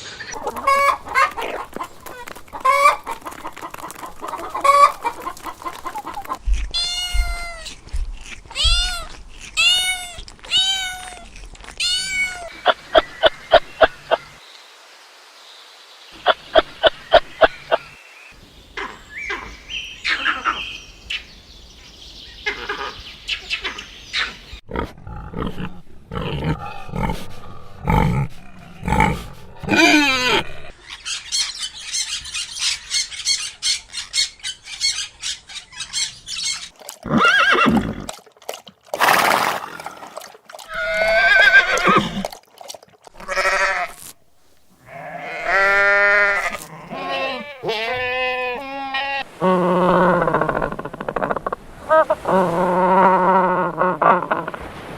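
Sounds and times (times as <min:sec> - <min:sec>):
farm animal calls: 0:00.3 - 0:14.2, 0:44.8 - 0:52.2.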